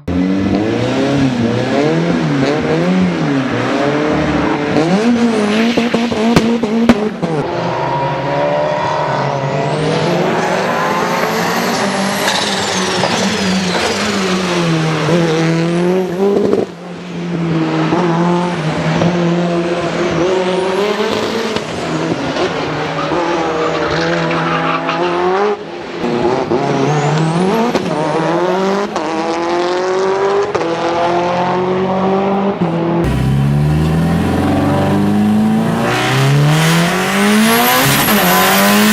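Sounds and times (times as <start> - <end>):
car engine accelerating hard: 0.0 - 38.9
another engine note: 33.0 - 37.8.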